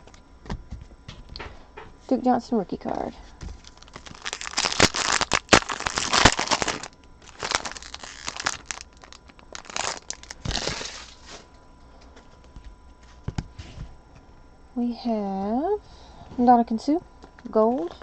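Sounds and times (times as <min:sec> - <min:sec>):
plastic wrapper crinkling: 0:03.5 - 0:11.3.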